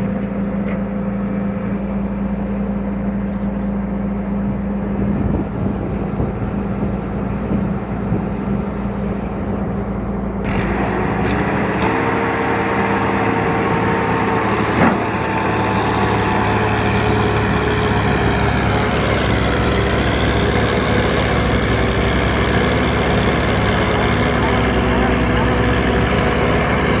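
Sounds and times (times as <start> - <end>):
tractor engine working hard: 0.0 - 27.0.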